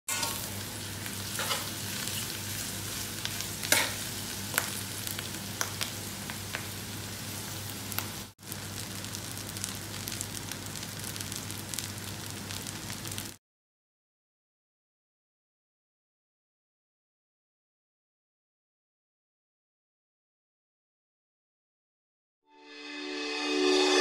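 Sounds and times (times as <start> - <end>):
spatula scraping a pan: 0.1 - 0.6, 1.2 - 2.6, 3.6 - 4.0
food sizzling in a wok: 0.1 - 13.4.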